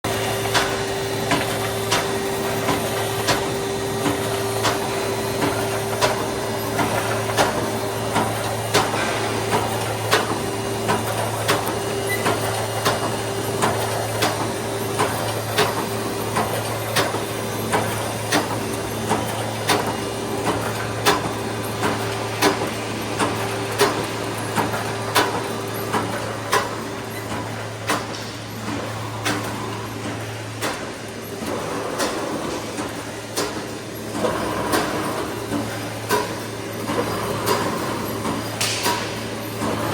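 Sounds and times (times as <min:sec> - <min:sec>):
welding machine sharp clacks: 0:00.1 - 0:39.9.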